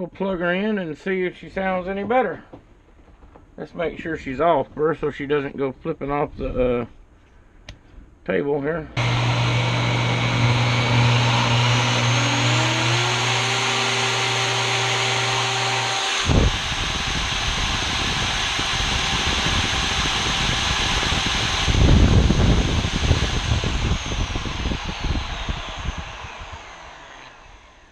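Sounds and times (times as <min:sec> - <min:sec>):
electric router motor whine: 0:09.0 - 0:27.9.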